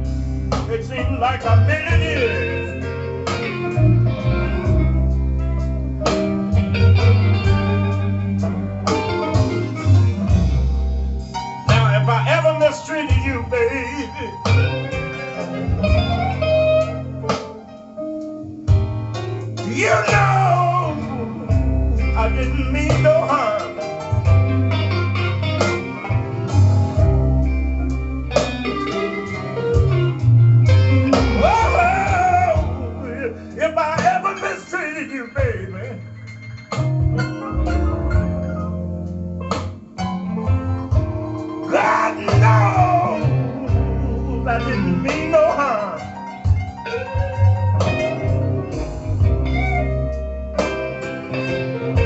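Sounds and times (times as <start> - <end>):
person singing: 0.0 - 4.8, 11.7 - 16.2, 19.6 - 24.2, 30.8 - 36.1, 41.6 - 46.5
blues guitar over bass line: 0.0 - 52.0.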